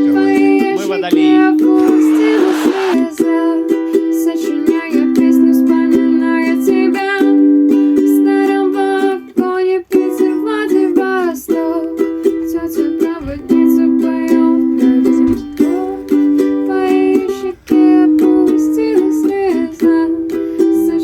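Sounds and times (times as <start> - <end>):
ukulele strumming chords: 0.0 - 21.0.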